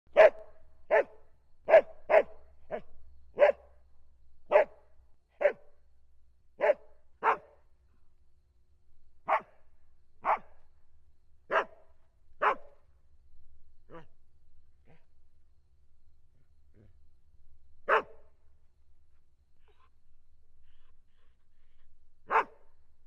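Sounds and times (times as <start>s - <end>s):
dog barking: 0.1s - 3.7s, 4.5s - 4.8s, 5.4s - 5.7s, 6.6s - 7.6s, 9.3s - 9.6s, 10.2s - 10.5s, 11.5s - 11.8s, 12.4s - 12.8s, 13.9s - 14.1s, 17.8s - 18.3s, 22.2s - 22.6s.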